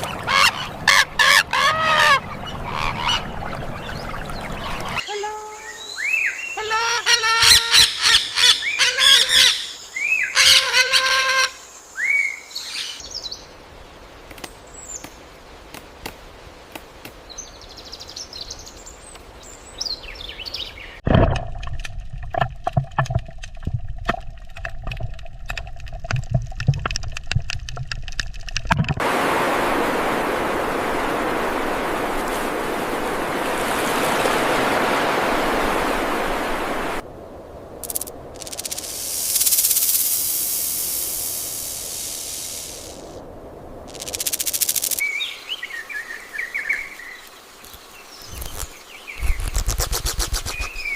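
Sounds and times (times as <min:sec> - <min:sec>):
bird calls: 0:00.0 - 0:13.4, 0:44.0 - 0:50.9
long steady hiss: 0:09.6 - 0:20.6, 0:29.0 - 0:50.9
rapid clicking pulsing call: 0:37.8 - 0:41.0, 0:43.9 - 0:45.0.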